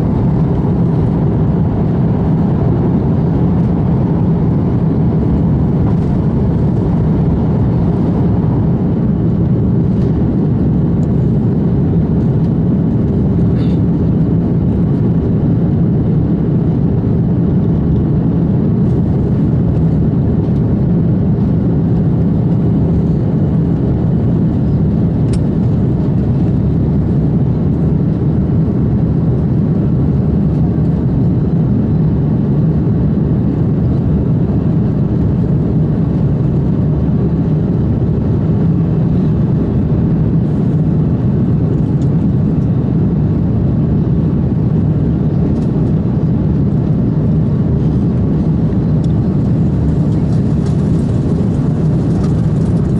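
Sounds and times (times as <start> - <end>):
airliner cabin engine roar: 0.0 - 52.9.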